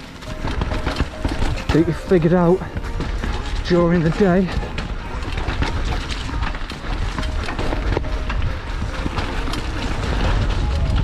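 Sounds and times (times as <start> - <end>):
bike rattling and clicking: 0.0 - 11.0
bike tyres rolling on dirt: 0.0 - 11.0
wind buffeting microphone: 4.5 - 11.0.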